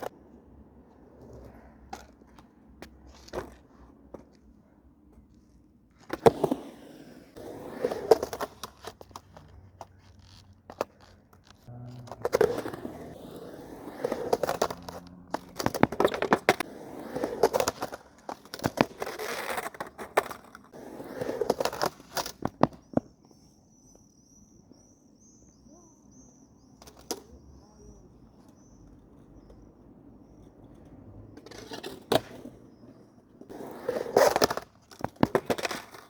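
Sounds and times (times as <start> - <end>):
skateboard rolling and grinding: 0.0 - 25.4, 26.1 - 36.0
skateboard clacking on ground: 6.0 - 23.4, 29.4 - 36.0
faint high chirping: 22.8 - 29.7.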